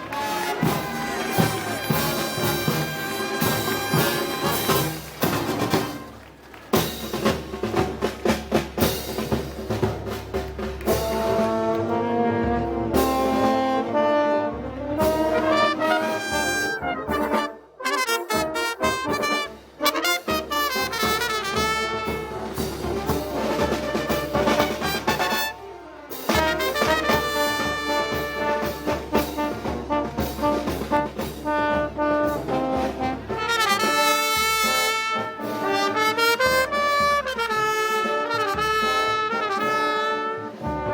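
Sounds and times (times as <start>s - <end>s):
steady drum beat: 0.0s - 14.1s, 15.0s - 25.5s, 26.1s - 40.9s
brass band playing: 0.0s - 40.9s.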